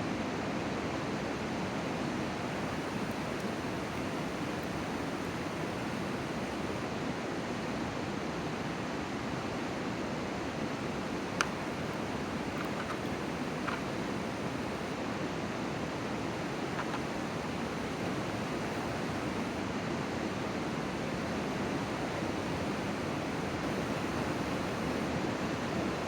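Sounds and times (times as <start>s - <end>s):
steady outdoor rushing noise: 2.1s - 7.0s, 10.3s - 26.0s
faint sharp ticks: 2.5s - 6.8s, 11.1s - 15.0s, 16.4s - 19.6s.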